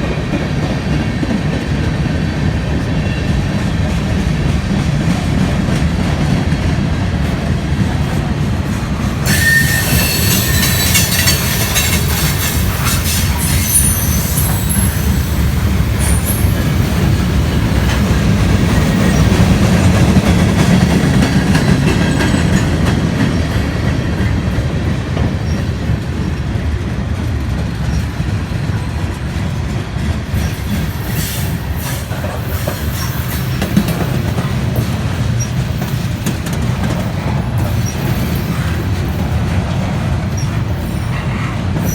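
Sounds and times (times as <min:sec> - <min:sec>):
train rumbling on track: 0:00.0 - 0:41.9
train wheel squeal: 0:09.2 - 0:23.9, 0:25.4 - 0:26.4, 0:27.8 - 0:28.2, 0:30.3 - 0:41.9.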